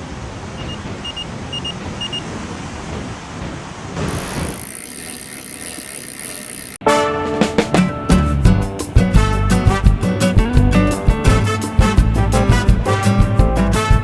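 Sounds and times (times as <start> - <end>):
road traffic rumble: 0.0 - 6.8
short high beeps: 0.6 - 2.2.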